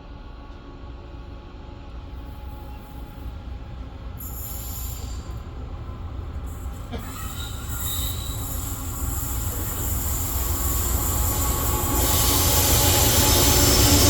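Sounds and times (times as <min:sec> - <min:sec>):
freight train rumble: 0:00.0 - 0:14.0
metal wheel squeal: 0:07.1 - 0:12.5.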